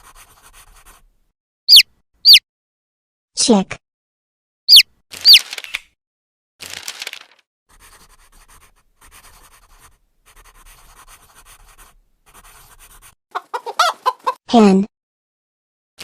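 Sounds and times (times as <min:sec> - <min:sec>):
chick peeping: 0:13.3 - 0:14.4.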